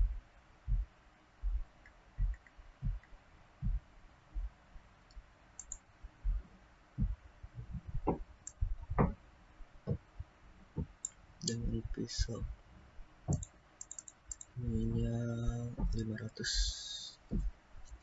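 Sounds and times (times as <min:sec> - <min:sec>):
computer mouse clicks: 0:05.6 - 0:05.8, 0:13.3 - 0:14.6.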